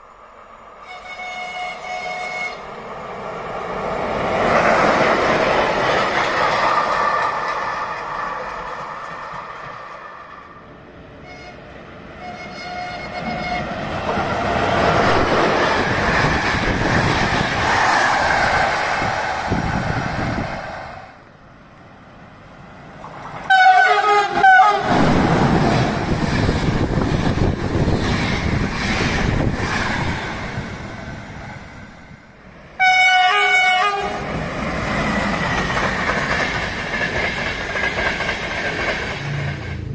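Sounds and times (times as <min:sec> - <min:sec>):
train wheels rumbling on rail: 0:00.0 - 0:39.9
locomotive horn blast: 0:00.8 - 0:02.7, 0:11.2 - 0:13.8, 0:23.5 - 0:25.1, 0:32.8 - 0:34.2.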